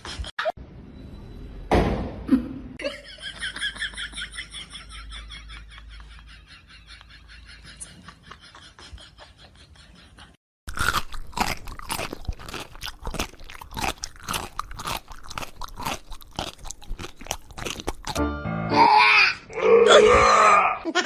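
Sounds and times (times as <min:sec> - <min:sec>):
crunching and chewing: 0:10.7 - 0:18.2.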